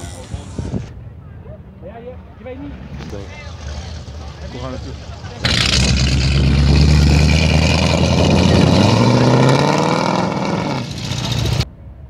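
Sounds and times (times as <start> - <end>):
car engine accelerating: 2.6 - 11.7.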